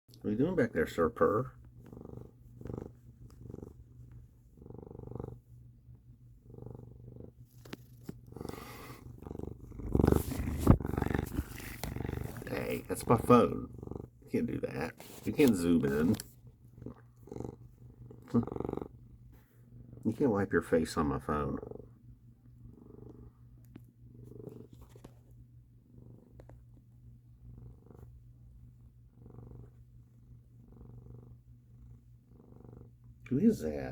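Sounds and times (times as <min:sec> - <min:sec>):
cat purring: 0:00.2 - 0:33.9
rustling: 0:07.4 - 0:13.3, 0:14.8 - 0:16.4.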